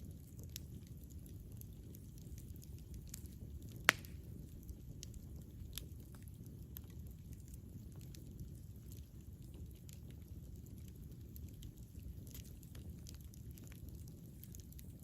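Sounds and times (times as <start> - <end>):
campfire crackling: 0.0 - 15.0
sharp loud pop of fire: 3.9 - 4.2.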